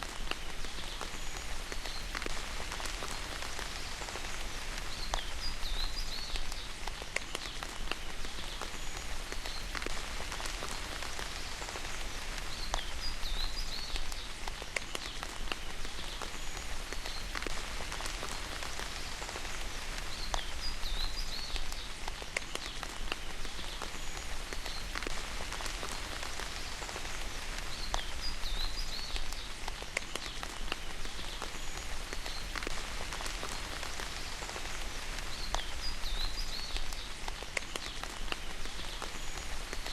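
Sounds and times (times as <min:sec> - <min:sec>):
rain drop ticks: 0:00.0 - 0:39.9
steady rain: 0:00.0 - 0:39.9.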